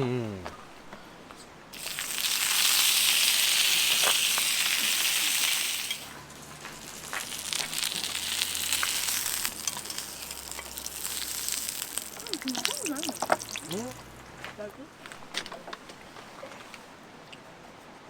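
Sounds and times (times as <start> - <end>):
pan sizzling over campfire: 1.7 - 14.3
crackles: 1.8 - 14.5.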